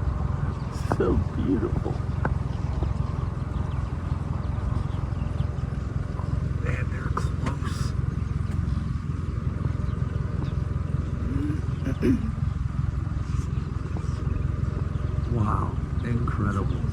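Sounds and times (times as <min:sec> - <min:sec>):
birds chirping: 0:00.0 - 0:16.9
low rumble: 0:00.0 - 0:16.9.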